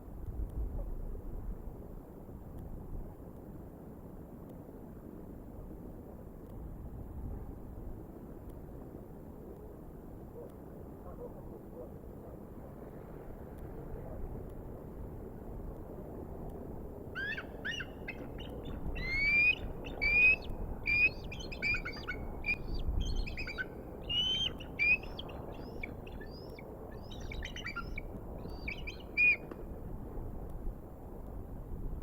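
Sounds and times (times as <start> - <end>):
wind noise: 0.0 - 3.2, 13.2 - 32.0
eagle calling: 17.1 - 29.6.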